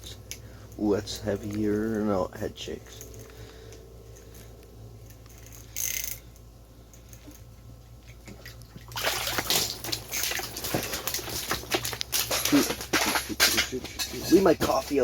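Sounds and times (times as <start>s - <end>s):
steady low hum: 0.0s - 15.0s
fish thrashing and splashing water: 8.2s - 13.2s.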